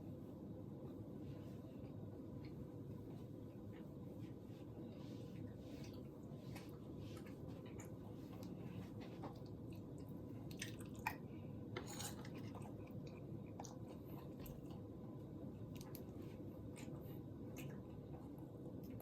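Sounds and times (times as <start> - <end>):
steady low hum: 0.0 - 19.0
person chewing food: 5.4 - 14.9, 15.7 - 19.0.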